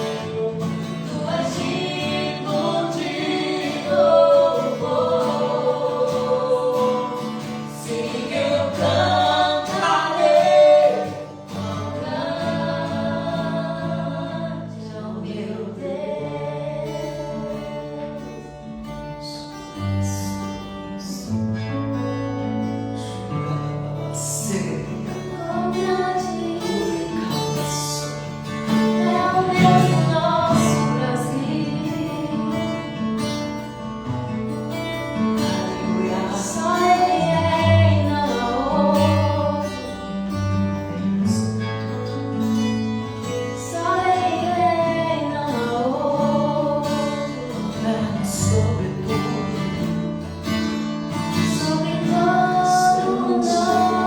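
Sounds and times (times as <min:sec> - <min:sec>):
person singing: 0:00.0 - 0:18.1, 0:23.4 - 0:32.9, 0:35.7 - 0:40.0, 0:51.5 - 0:54.0.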